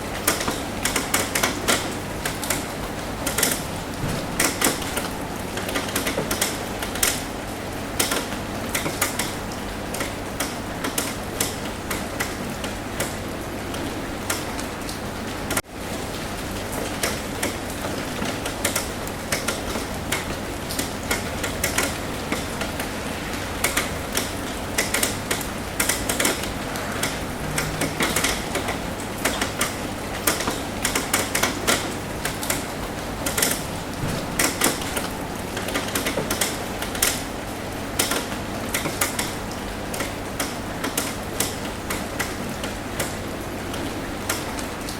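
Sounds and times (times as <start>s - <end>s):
rain drumming on a roof: 0.0s - 44.9s.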